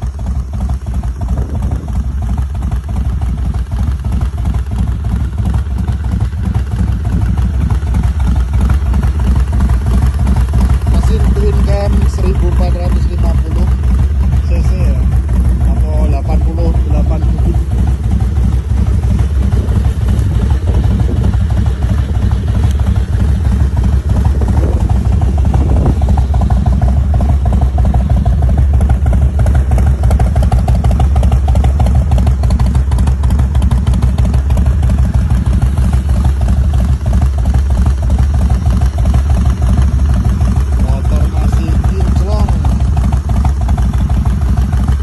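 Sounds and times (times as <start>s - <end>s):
motorcycle engine idling: 0.0s - 45.0s.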